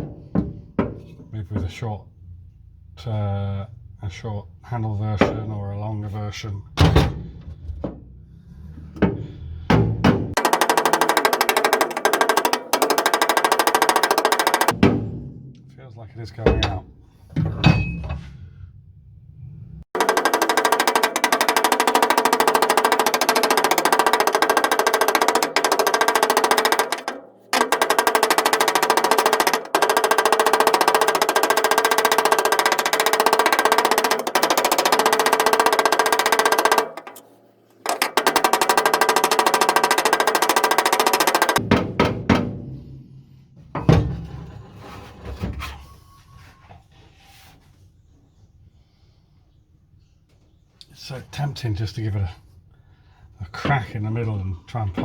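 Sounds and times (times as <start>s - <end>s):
loud knocks and clatter: 0.0s - 1.7s, 8.8s - 15.8s, 19.9s - 45.8s
air hammer rattling on metal: 9.0s - 15.8s, 19.9s - 45.9s.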